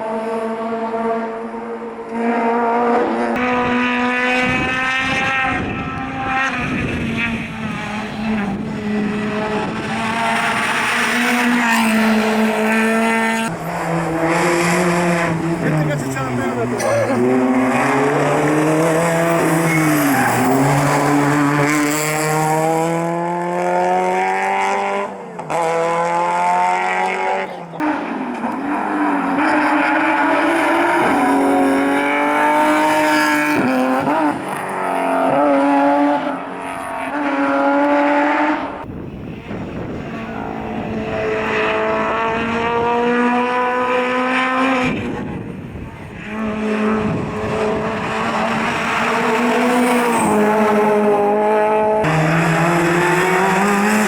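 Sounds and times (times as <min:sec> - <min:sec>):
rally car engines at full throttle: 0:00.0 - 0:54.0
tyre squeal: 0:19.1 - 0:21.3.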